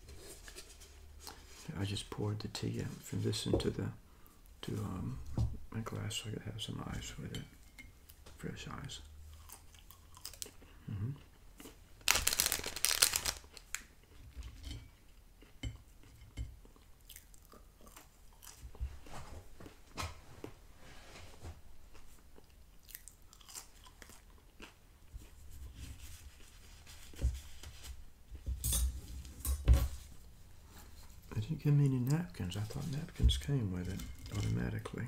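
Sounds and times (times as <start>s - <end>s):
person chewing fries: 9.3s - 18.8s, 21.9s - 25.4s.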